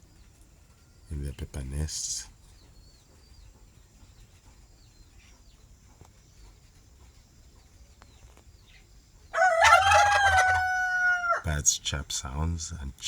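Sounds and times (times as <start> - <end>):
bird chirps: 0.0 - 9.4.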